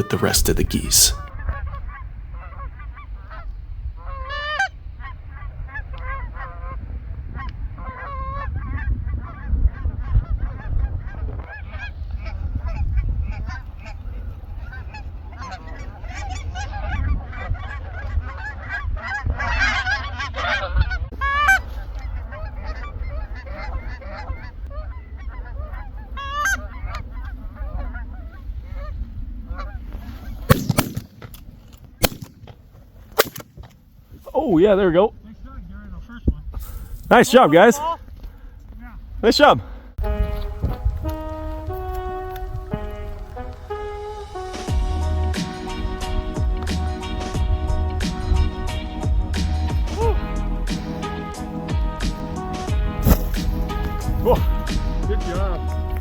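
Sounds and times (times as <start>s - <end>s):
geese honking: 0.0s - 6.8s, 7.4s - 28.8s, 40.0s - 56.0s
shotgun blast: 30.5s - 31.3s, 32.0s - 32.4s, 33.2s - 33.5s.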